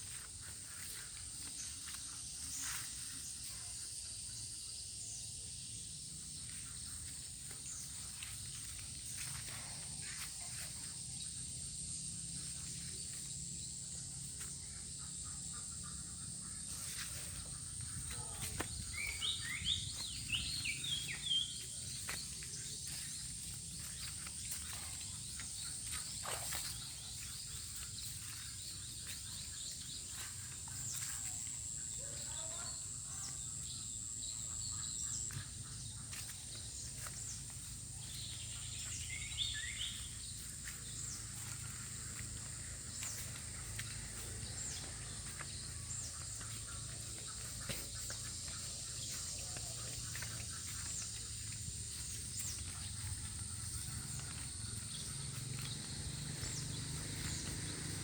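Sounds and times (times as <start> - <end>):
insects droning: 0.0 - 58.0
bird chirping: 14.6 - 58.0.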